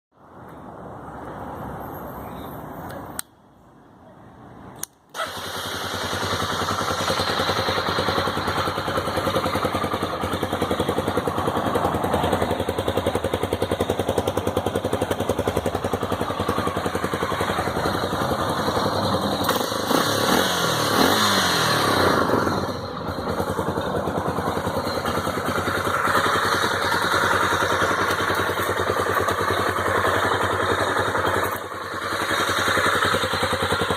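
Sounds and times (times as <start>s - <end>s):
motorcycle engine starting and idling: 5.1s - 33.9s
motorcycle engine revving: 5.2s - 33.9s.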